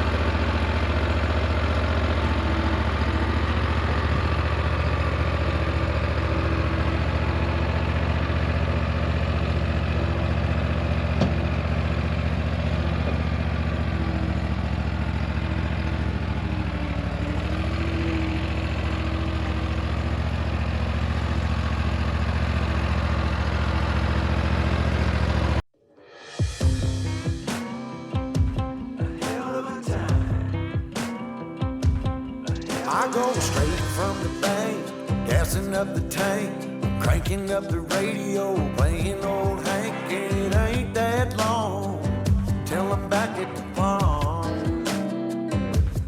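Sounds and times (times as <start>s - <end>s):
guitar song: 0.0s - 25.1s, 26.2s - 46.0s
lawnmower engine running: 0.0s - 25.6s, 26.6s - 46.0s.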